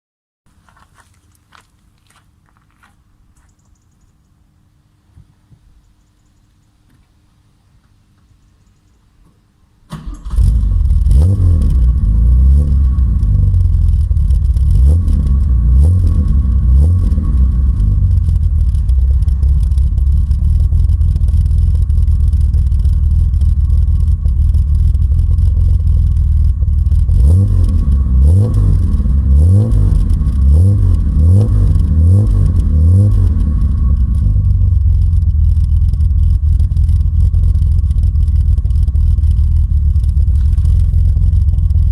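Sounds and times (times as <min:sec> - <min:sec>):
car engine throttle blips: 0:09.9 - 0:41.9
car engine idling: 0:10.0 - 0:41.9.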